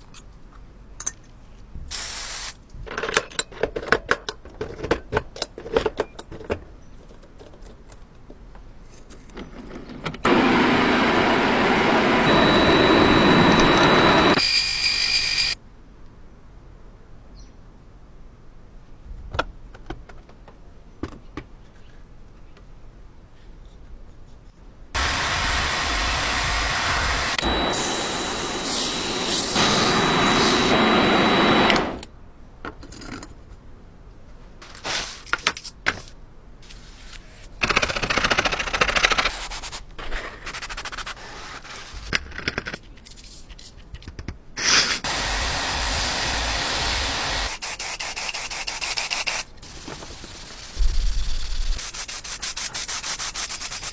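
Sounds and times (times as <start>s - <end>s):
machine running with high whine: 10.3s - 15.6s, 25.0s - 32.1s.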